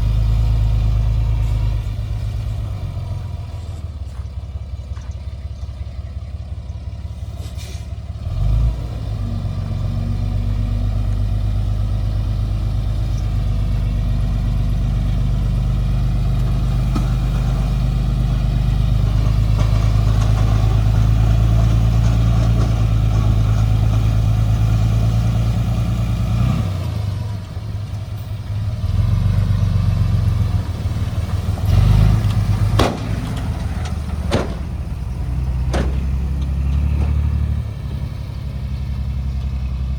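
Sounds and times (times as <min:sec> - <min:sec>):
excavator engine under load: 0:00.0 - 0:39.9
sharp knocks: 0:32.8 - 0:34.9, 0:35.7 - 0:36.2.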